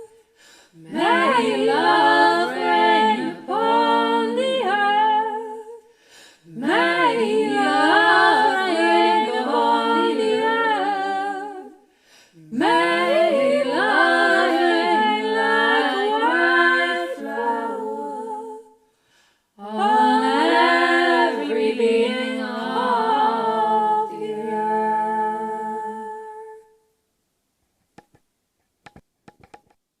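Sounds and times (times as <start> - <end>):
a cappella humming harmony: 0.0 - 26.9
singers breathing: 0.2 - 0.9, 5.8 - 6.6, 11.8 - 12.5, 18.8 - 19.6.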